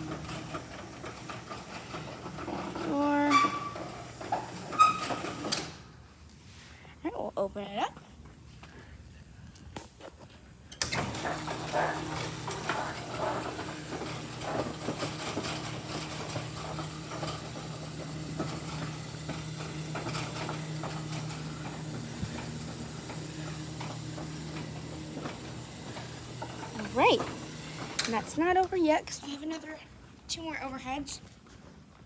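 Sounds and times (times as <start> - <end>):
door opener clunk: 0.0 - 5.9, 10.8 - 28.4
motor humming: 10.9 - 28.7.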